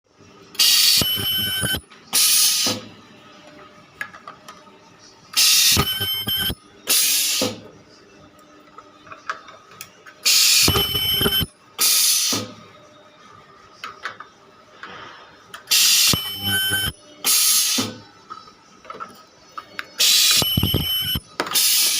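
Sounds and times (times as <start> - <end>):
ultrasonic welding machine squealing: 0.6 - 2.8, 5.4 - 7.4, 10.3 - 12.4, 15.7 - 17.9, 20.0 - 21.9.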